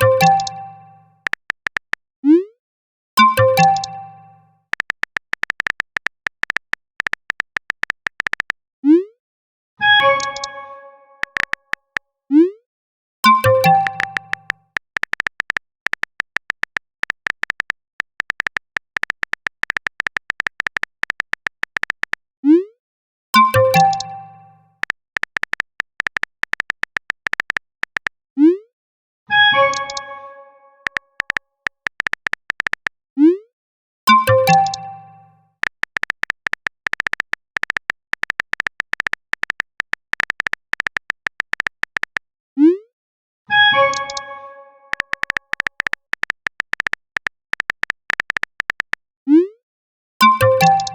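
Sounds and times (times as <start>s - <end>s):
smartphone keyboard typing clicks: 0.0s - 2.0s, 3.2s - 8.6s, 11.2s - 12.0s, 13.3s - 22.2s, 23.4s - 24.2s, 24.8s - 28.2s, 30.8s - 33.0s, 34.1s - 42.3s, 44.9s - 49.0s, 50.2s - 50.9s.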